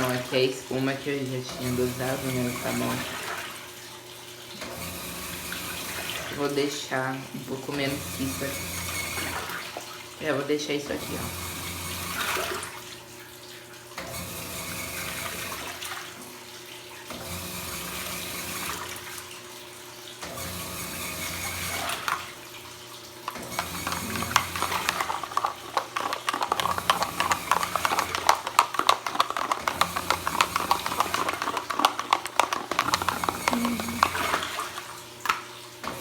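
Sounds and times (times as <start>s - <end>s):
water sloshing and splashing: 0.0s - 4.9s, 5.8s - 10.3s, 21.1s - 36.0s
washing machine motor humming: 7.7s - 9.7s, 11.0s - 12.7s, 20.3s - 36.0s.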